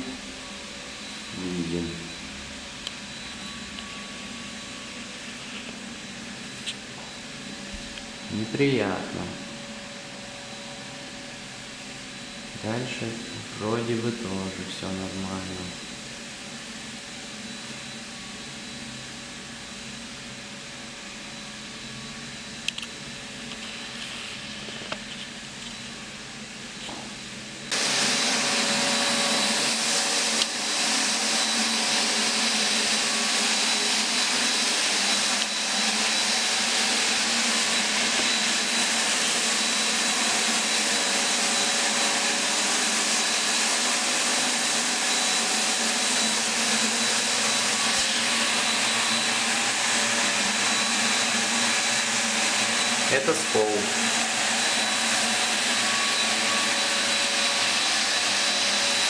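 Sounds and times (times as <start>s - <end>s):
faint high whine: 0.0s - 20.2s
motor with rushing air: 27.6s - 59.0s.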